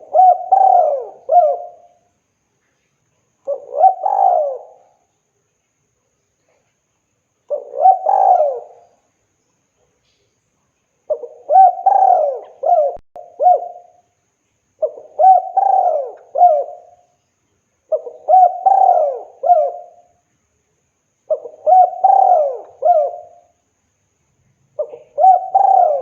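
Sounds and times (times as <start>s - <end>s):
dove cooing: 0.0s - 2.0s, 3.5s - 5.0s, 7.5s - 9.0s, 11.1s - 14.0s, 14.8s - 17.0s, 17.9s - 20.1s, 21.3s - 23.6s, 24.8s - 26.0s.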